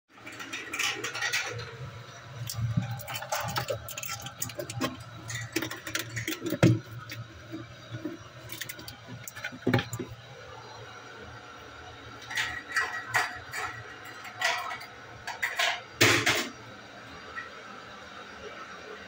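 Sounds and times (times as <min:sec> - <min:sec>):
objects clicking and knocking: 0:00.2 - 0:01.8, 0:02.4 - 0:10.2, 0:12.2 - 0:16.5.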